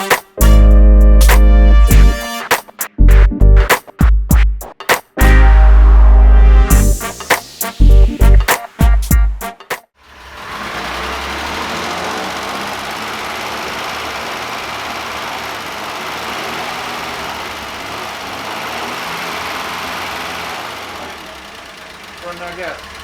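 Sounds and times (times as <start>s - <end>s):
car engine running: 10.0s - 23.0s.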